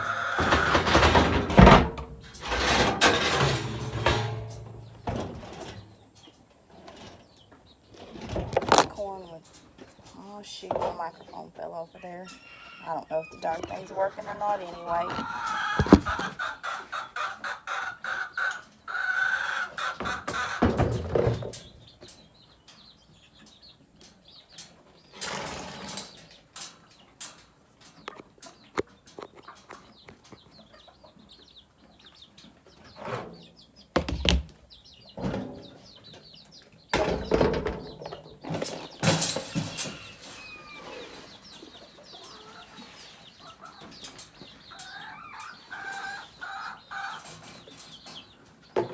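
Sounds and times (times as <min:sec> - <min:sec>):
chickens clucking: 0:00.0 - 0:48.9
knocks close to microphone: 0:15.8 - 0:16.2.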